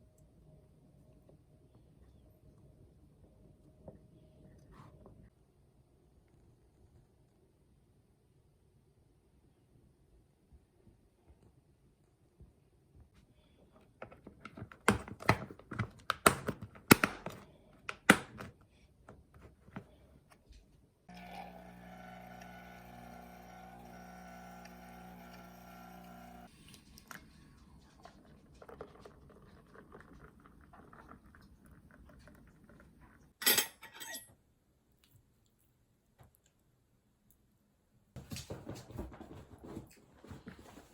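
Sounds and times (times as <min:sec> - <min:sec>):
steady mechanical hum: 0:21.1 - 0:26.5
dishes and utensils clattering: 0:33.4 - 0:34.4.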